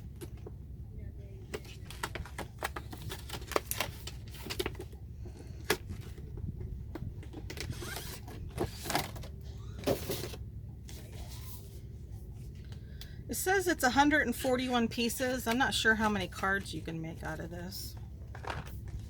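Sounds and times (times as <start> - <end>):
packaging crinkling: 1.6 - 6.2.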